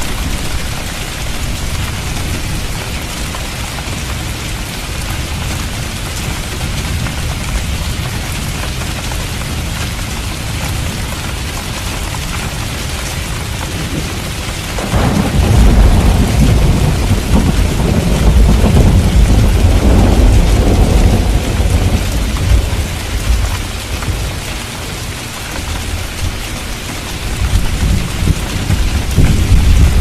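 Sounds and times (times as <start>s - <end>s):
heavy rain: 0.0s - 30.0s
thunder rumbling: 13.5s - 24.9s, 25.7s - 30.0s.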